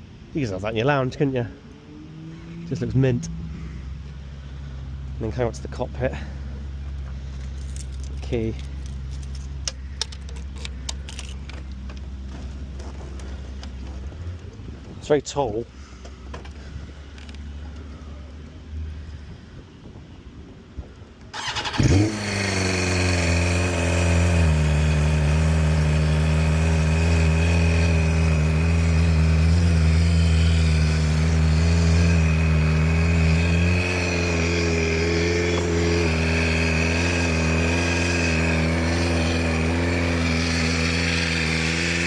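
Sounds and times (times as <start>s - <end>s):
motorcycle engine idling: 21.3s - 42.0s
motorcycle starter cranking: 21.3s - 42.0s.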